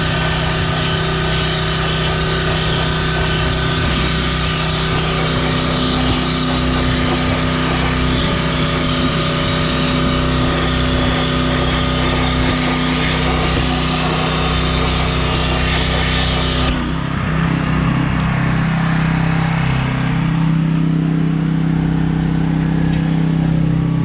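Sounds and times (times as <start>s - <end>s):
high-pressure water spraying hiss: 0.0s - 16.8s
small engine humming: 0.0s - 24.0s.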